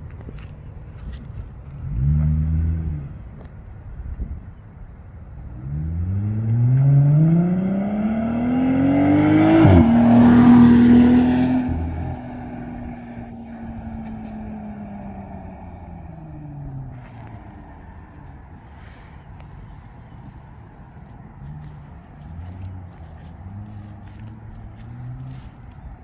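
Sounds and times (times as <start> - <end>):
tyre and road noise: 0.0 - 26.0
truck engine accelerating: 5.6 - 26.0.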